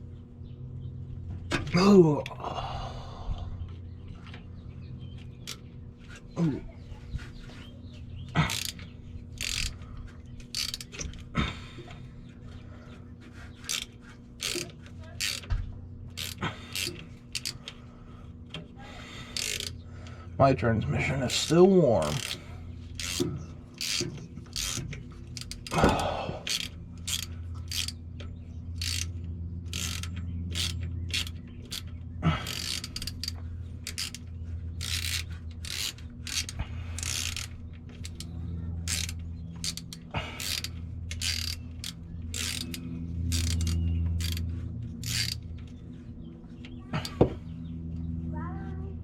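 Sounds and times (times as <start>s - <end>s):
steady low hum: 0.0s - 49.0s
ratchet wrench clicking: 8.4s - 9.8s, 10.4s - 11.3s, 13.4s - 15.5s, 16.1s - 17.8s, 19.3s - 19.8s, 21.3s - 45.8s.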